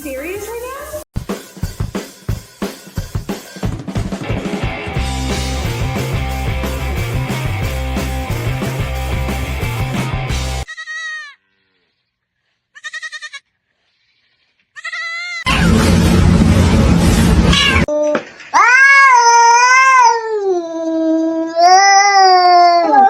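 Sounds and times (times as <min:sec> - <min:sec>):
animal crying: 0:10.7 - 0:11.6, 0:12.8 - 0:13.4, 0:14.8 - 0:15.6, 0:18.5 - 0:23.0
loud rushing noise: 0:15.5 - 0:17.9.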